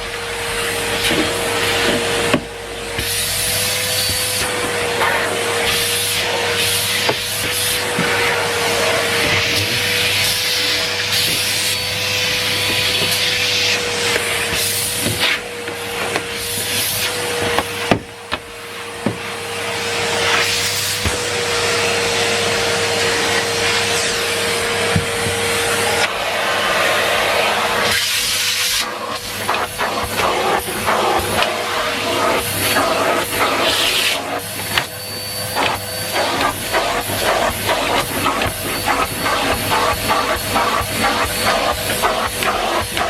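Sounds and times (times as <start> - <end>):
vacuum cleaner running: 0.0 - 43.0.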